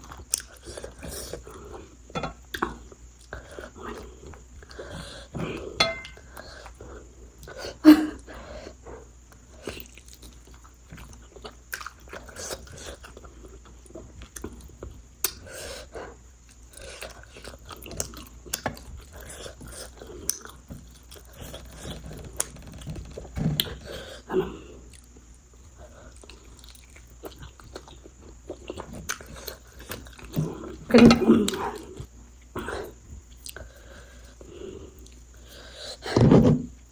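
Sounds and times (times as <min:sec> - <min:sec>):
person chewing and biting food: 0:26.0 - 0:30.8.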